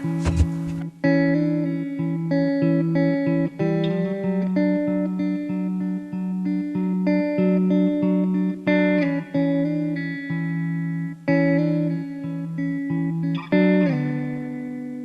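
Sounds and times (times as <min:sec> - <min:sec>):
plucked guitar music: 0:00.0 - 0:15.0.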